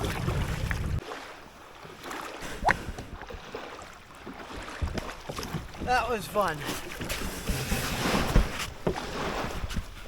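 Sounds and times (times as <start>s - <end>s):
wind rumble on microphone: 0.0s - 1.0s
water splashing around kayak: 0.0s - 10.0s.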